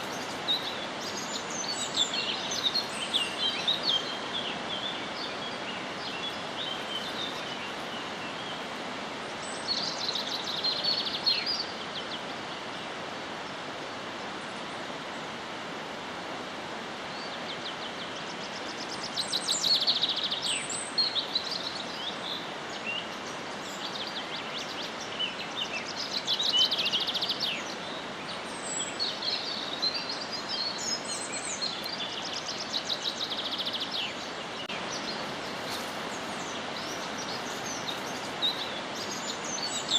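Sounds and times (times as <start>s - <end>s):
background hiss: 0.0s - 39.9s
birds trilling and chirping: 19.2s - 39.9s.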